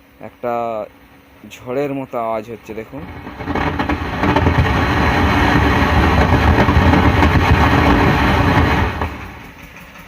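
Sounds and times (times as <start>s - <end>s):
speaker rumble and crackle: 2.4s - 9.7s.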